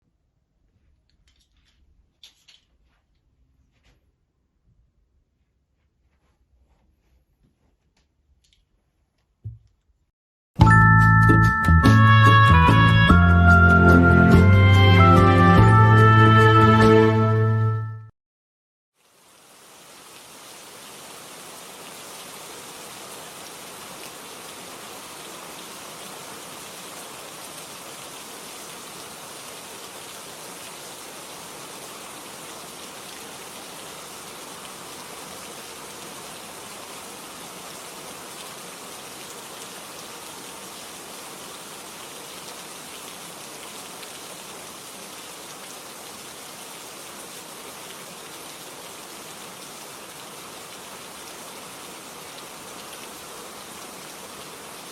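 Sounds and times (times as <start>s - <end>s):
steady rain hiss: 19.0s - 54.9s.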